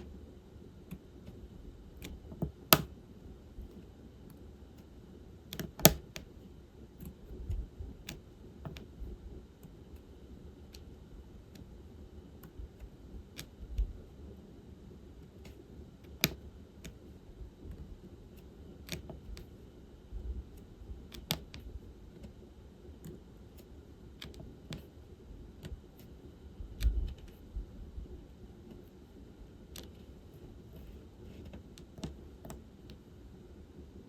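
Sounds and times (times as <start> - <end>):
pen tapping small clicks: 2.0 - 2.9, 5.5 - 6.3, 8.1 - 8.9, 15.4 - 17.0.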